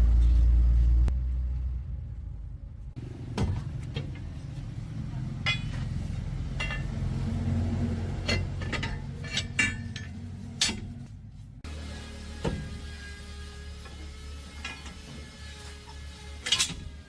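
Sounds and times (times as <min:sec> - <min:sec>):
low rumble: 0:00.0 - 0:11.7
metal clinking against metal: 0:05.4 - 0:07.2, 0:08.2 - 0:11.0.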